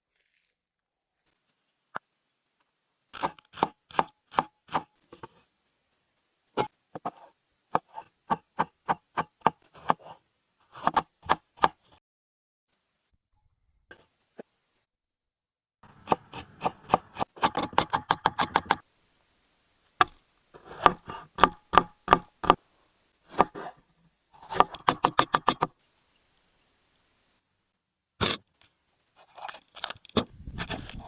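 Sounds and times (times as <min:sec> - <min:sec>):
knife chopping on cutting board: 0:16.0 - 0:18.8, 0:20.6 - 0:22.6, 0:23.3 - 0:23.7.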